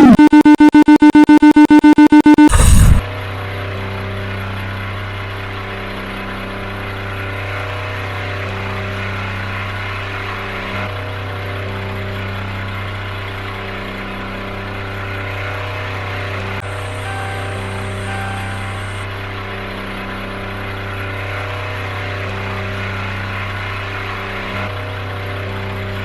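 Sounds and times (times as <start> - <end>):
high engine tone: 0.0 - 26.0
bus engine running: 2.5 - 26.0.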